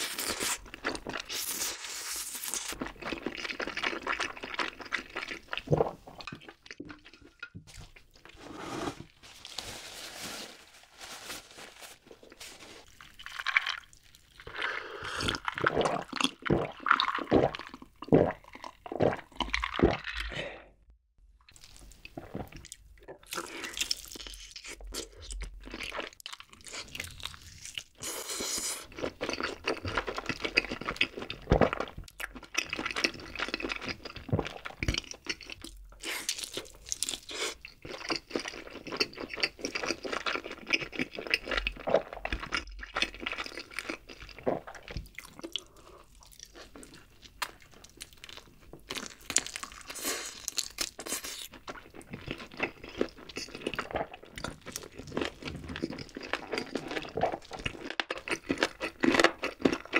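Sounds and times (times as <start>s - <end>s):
chewing with crunches: 0.0s - 8.1s, 21.5s - 59.9s.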